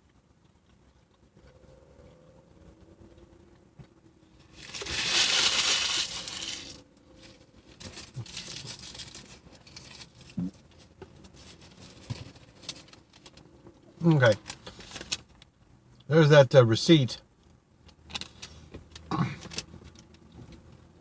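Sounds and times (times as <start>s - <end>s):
paper bag crinkling and rustling: 4.5s - 10.4s.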